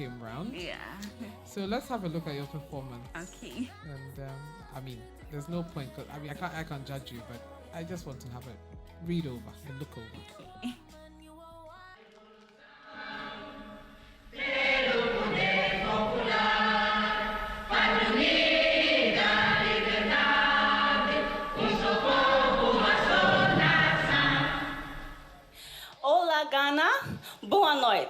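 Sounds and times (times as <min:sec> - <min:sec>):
choir singing in harmony: 0:12.0 - 0:25.6.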